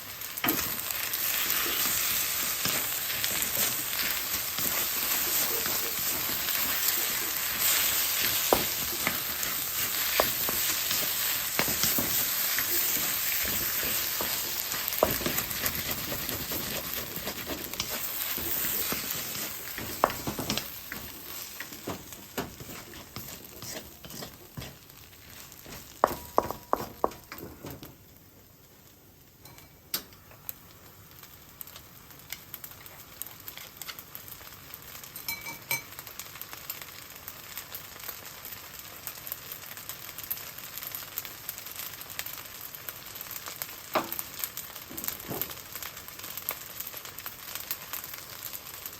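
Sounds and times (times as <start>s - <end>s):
rice sizzling in a pan: 0.0s - 48.9s
spatula scraping a pan: 0.4s - 27.4s
utensil tapping on pan: 8.3s - 24.8s, 25.6s - 27.9s.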